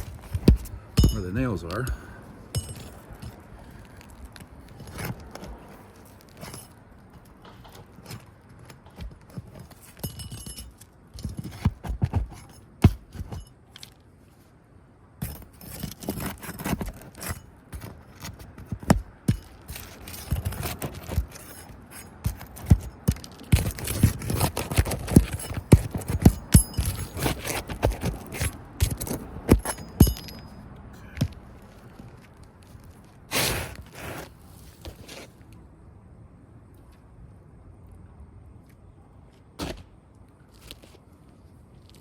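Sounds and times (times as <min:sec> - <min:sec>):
roofing tool scraping shingles: 0:15.2 - 0:30.4, 0:33.3 - 0:35.4.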